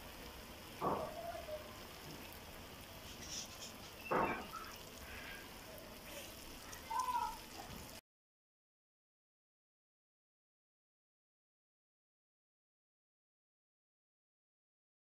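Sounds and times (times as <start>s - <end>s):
chicken frying in hot oil: 0.0s - 8.0s
spatula scraping a pan: 3.0s - 4.5s.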